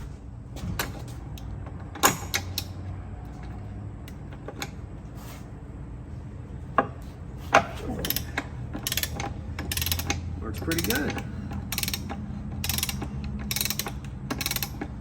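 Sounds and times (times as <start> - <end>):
metal tool clicks and knocks: 6.8 - 15.0.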